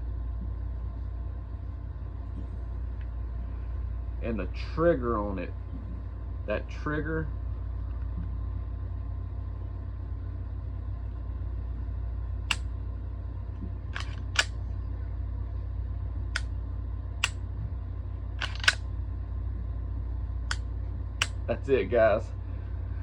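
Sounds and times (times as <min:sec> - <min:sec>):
steady low hum: 0:00.0 - 0:23.0
pistol trigger clicks: 0:14.0 - 0:14.5, 0:18.4 - 0:18.8.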